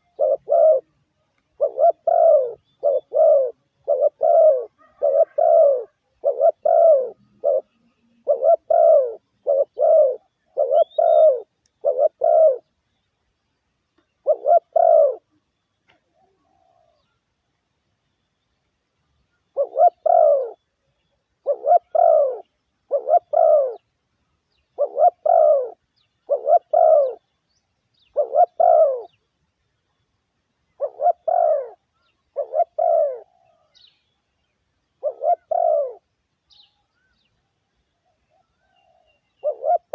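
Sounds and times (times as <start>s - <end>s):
dove cooing: 0.0s - 12.7s, 14.2s - 15.4s, 16.0s - 17.2s, 19.5s - 20.6s, 21.4s - 23.9s, 24.7s - 27.3s, 28.1s - 29.2s, 30.7s - 33.9s, 34.9s - 37.2s, 38.0s - 39.9s.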